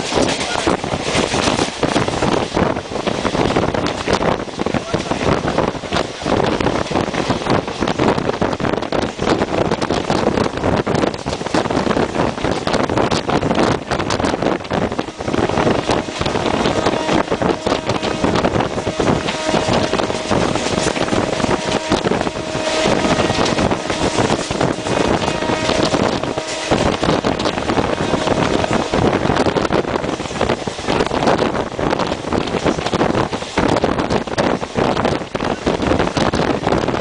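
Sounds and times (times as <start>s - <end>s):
wheels clattering over rail joints: 0.0s - 36.9s
train coaches rushing and rattling: 0.0s - 37.0s
wind buffeting microphone: 0.0s - 37.0s.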